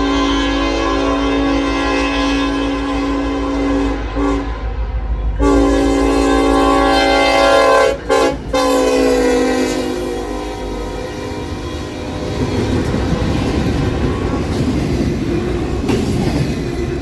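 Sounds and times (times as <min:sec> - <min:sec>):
locomotive air horn blasts: 0:00.0 - 0:14.5
low rumble of train: 0:00.0 - 0:17.0.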